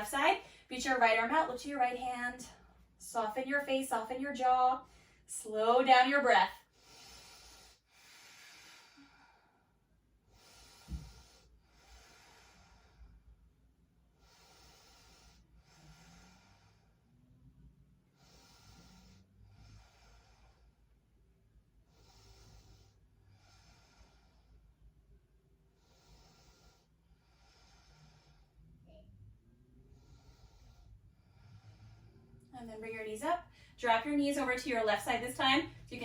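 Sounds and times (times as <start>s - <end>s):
deep breathing: 6.7s - 32.5s.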